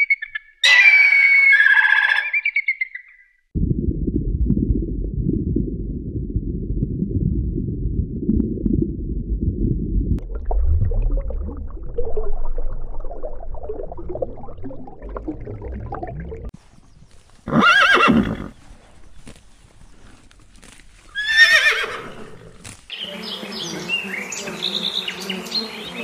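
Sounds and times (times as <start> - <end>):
low underwater rumble: 3.6 - 16.6
water churning and splashing: 10.2 - 16.6
horse whinnying: 17.5 - 18.5, 21.1 - 22.4.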